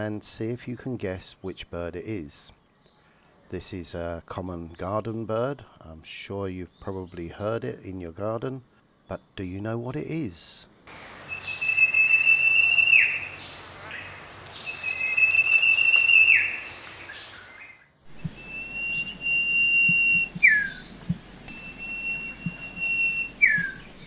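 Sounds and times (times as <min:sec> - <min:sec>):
bird whistling calls: 0:10.9 - 0:20.8, 0:21.6 - 0:24.0.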